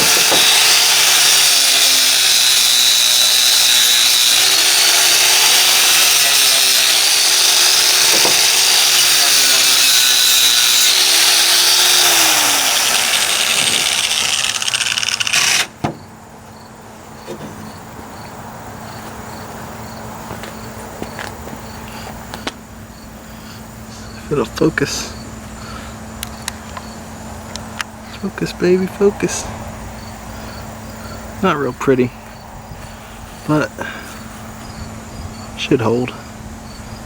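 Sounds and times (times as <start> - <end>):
angle grinder grinding steel: 0.0 - 15.8
crickets chirping: 11.5 - 37.0.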